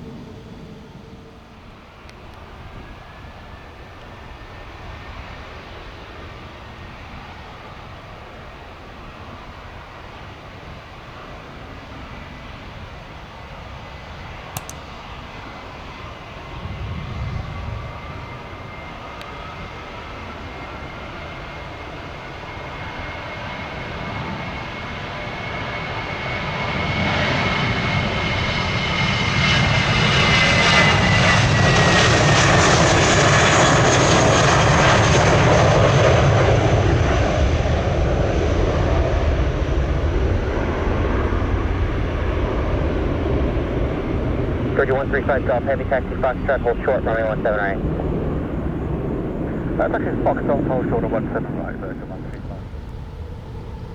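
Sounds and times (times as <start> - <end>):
jet airliner engines passing: 0.0 - 53.9
deep rumble: 42.4 - 53.9.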